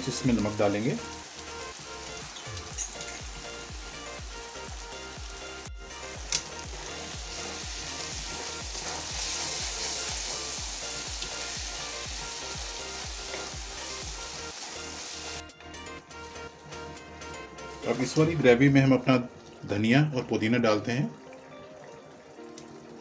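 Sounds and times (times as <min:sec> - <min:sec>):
masala sizzling in a pan: 0:00.0 - 0:15.5
spatula stirring: 0:06.6 - 0:11.6.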